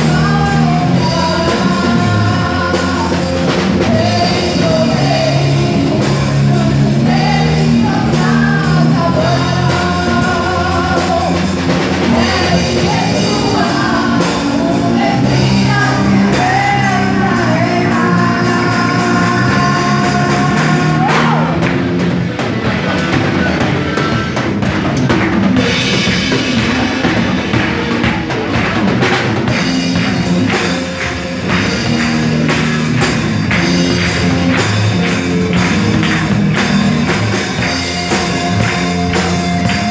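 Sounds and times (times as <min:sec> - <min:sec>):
person singing: 0:00.0 - 0:21.7
drum kit: 0:00.0 - 0:39.9
worship band music: 0:00.0 - 0:39.9.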